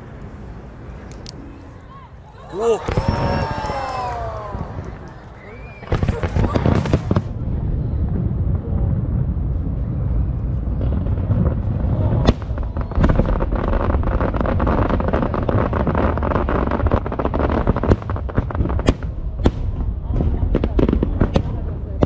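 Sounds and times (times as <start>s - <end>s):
firework crackling: 0.0s - 7.7s
sharp firework bangs: 2.6s - 7.7s
low rumble of firework booms: 4.5s - 22.0s.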